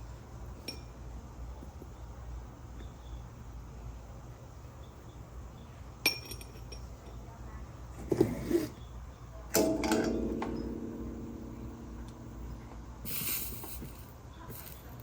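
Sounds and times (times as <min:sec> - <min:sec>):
glass and metal clinking: 0:06.1 - 0:06.9, 0:09.6 - 0:14.1
steady low hum: 0:08.7 - 0:15.0
ringing tone: 0:09.6 - 0:13.1.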